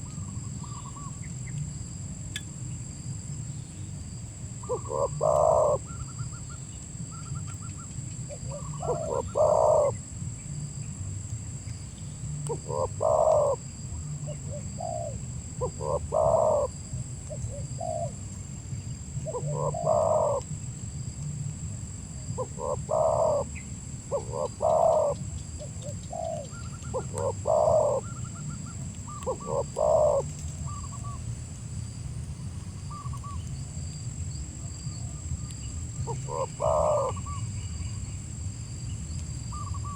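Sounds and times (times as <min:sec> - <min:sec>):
dove cooing: 0:04.6 - 0:06.2, 0:08.3 - 0:10.0, 0:12.4 - 0:18.2, 0:19.2 - 0:20.5, 0:22.4 - 0:31.2, 0:36.0 - 0:37.5.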